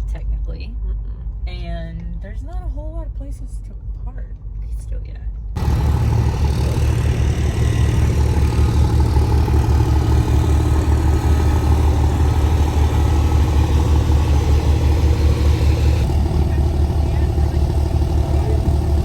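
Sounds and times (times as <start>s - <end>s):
truck engine running: 5.6s - 19.0s.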